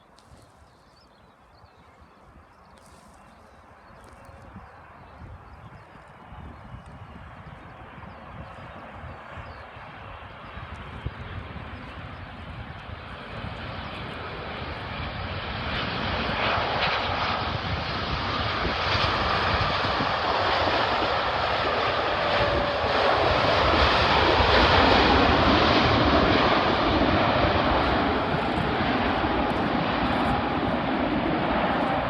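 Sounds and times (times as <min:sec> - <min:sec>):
airliner engine rushing: 0:02.6 - 0:32.0.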